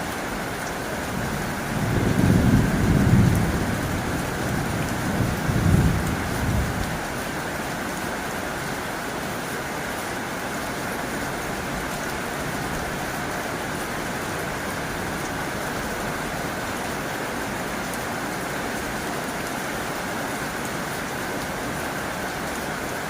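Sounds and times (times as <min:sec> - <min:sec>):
heavy rain on a tin roof: 0:00.0 - 0:23.0.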